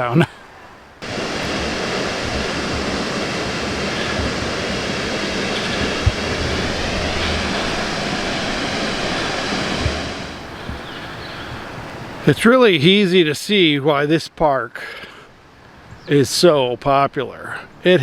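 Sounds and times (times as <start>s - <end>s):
low bump: 1.0s - 12.0s
waterfall rushing: 1.0s - 12.3s.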